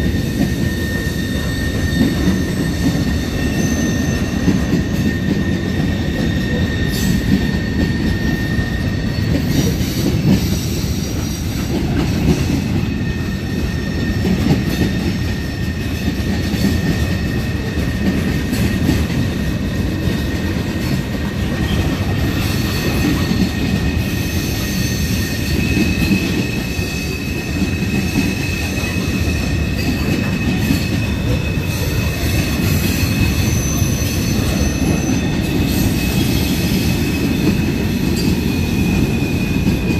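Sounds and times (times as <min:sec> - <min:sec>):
train wheels rumbling on rails: 0:00.0 - 0:39.9
high wheel squeal: 0:00.1 - 0:11.5, 0:21.6 - 0:39.8.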